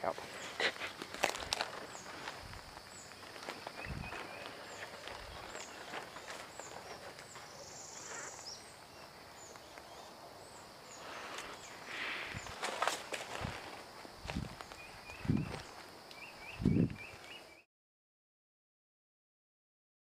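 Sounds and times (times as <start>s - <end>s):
footsteps rustling through grass: 0.1s - 8.1s, 11.0s - 16.0s.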